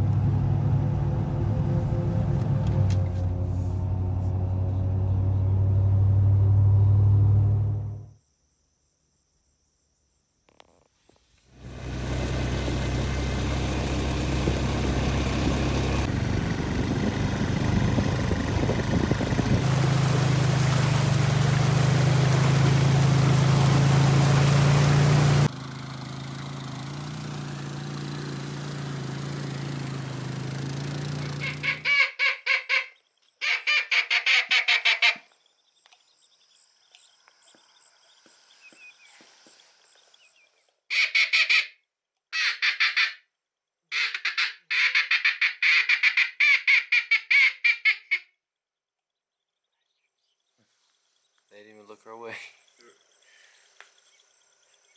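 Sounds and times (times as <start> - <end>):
engine running steadily: 0.0 - 8.1, 11.6 - 31.8
honking waterfowl calls: 31.2 - 35.3, 42.4 - 43.2, 43.9 - 48.2.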